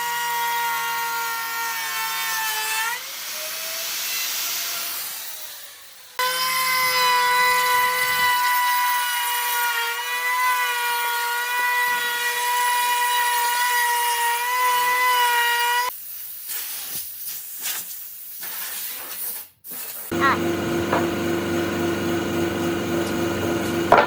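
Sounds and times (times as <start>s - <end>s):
power tool whining: 2.8s - 13.0s, 20.1s - 24.0s
knocks and scraping: 20.0s - 21.5s, 22.2s - 24.0s
machine humming: 20.1s - 24.0s.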